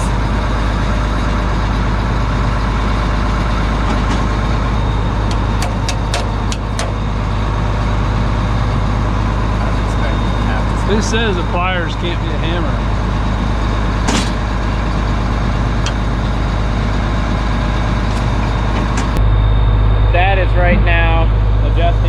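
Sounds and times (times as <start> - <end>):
diesel engine idling: 0.0 - 22.0
sharp metal taps: 5.3 - 7.0.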